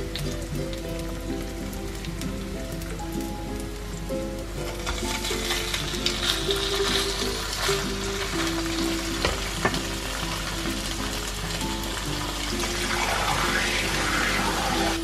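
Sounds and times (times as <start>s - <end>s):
food sizzling in hot oil: 0.0s - 15.0s
wooden spatula knocks: 9.2s - 9.9s.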